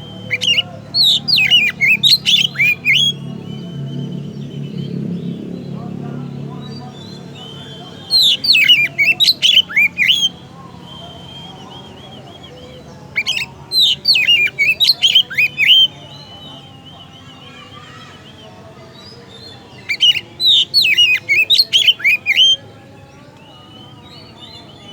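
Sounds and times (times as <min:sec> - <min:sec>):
bird singing whistled notes: 0:00.0 - 0:24.9.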